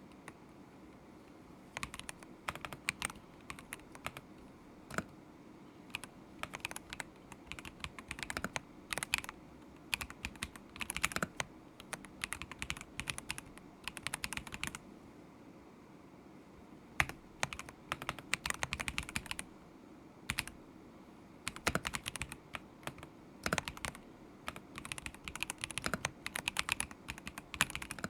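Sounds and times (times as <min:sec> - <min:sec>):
mechanical keyboard typing: 0:01.7 - 0:04.3, 0:04.9 - 0:05.1, 0:05.9 - 0:14.8, 0:17.0 - 0:19.5, 0:20.3 - 0:20.6, 0:21.5 - 0:28.0.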